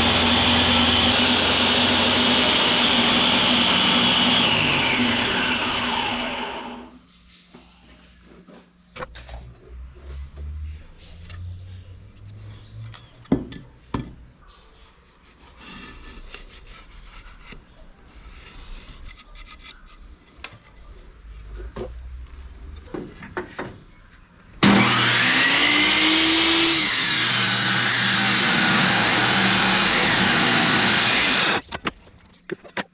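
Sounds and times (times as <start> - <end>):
power tool running loudly: 0.0 - 6.9, 24.6 - 31.6
rubbing and scraping: 14.4 - 22.4.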